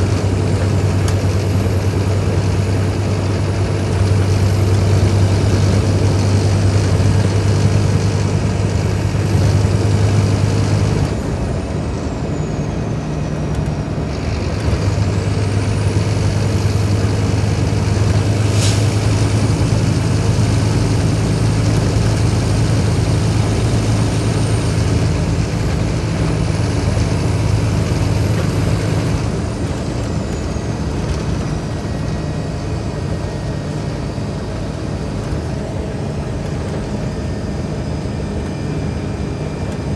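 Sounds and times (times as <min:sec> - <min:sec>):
bus diesel engine under load: 0:00.0 - 0:39.9.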